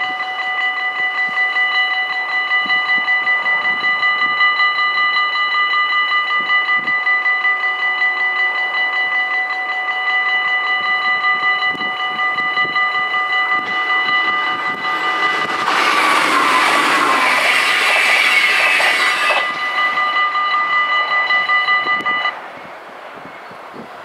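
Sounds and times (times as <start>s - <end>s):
level crossing bells ringing: 0.0s - 18.0s, 18.6s - 22.4s
electric train passing: 0.0s - 24.0s
train whine: 0.0s - 24.0s.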